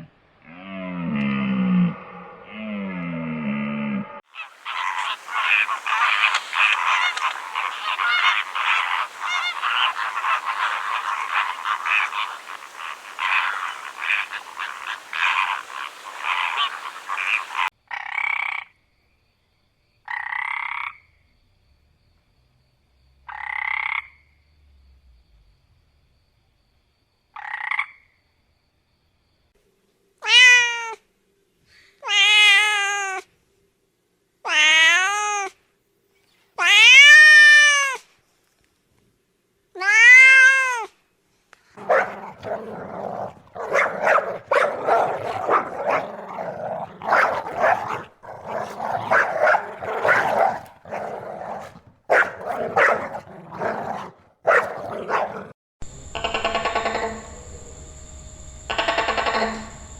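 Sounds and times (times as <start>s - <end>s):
rapid rasping animal calls: 4.3s - 17.7s, 41.8s - 55.5s.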